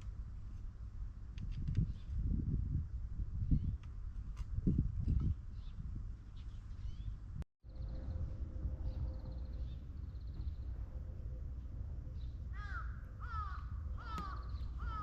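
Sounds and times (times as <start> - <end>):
crow cawing: 12.5 - 15.0.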